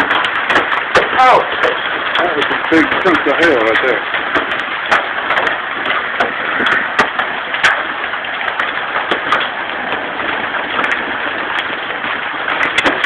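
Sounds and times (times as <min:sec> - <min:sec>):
hailstones cracking on hard surfaces: 0:00.0 - 0:13.0
heavy hail falling: 0:00.0 - 0:13.0.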